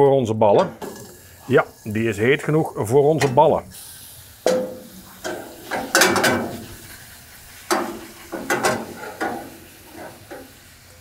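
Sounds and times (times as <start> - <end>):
meatballs sizzling in hot oil: 0.0 - 11.0.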